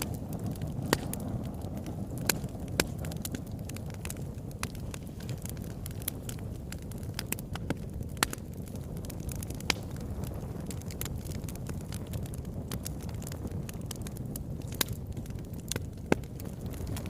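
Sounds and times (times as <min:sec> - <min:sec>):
fire crackling in a fireplace: 0:00.0 - 0:17.0.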